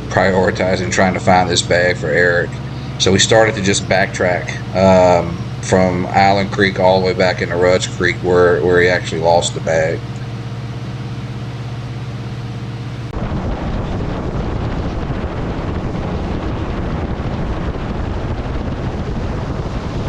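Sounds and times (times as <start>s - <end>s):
outboard engine running: 0.0s - 20.0s
steady low hum: 0.0s - 20.0s
wind rushing over microphone: 12.9s - 20.0s.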